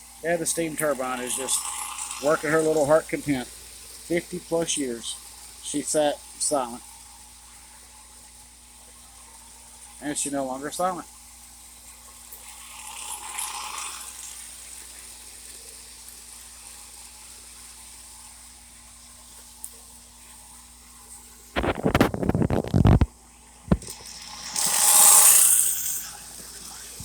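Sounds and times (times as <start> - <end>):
model train faint hum: 0.0 - 8.2, 8.8 - 18.6, 23.7 - 27.0
loud hiss: 23.7 - 27.0.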